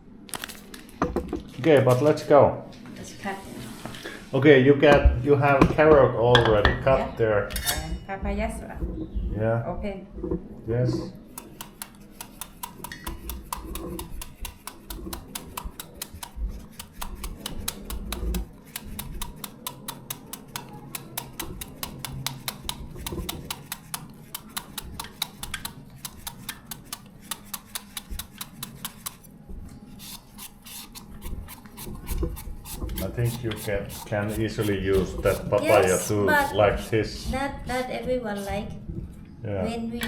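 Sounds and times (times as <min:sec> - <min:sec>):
knife chopping papaya: 0:11.0 - 0:29.3, 0:30.0 - 0:36.9.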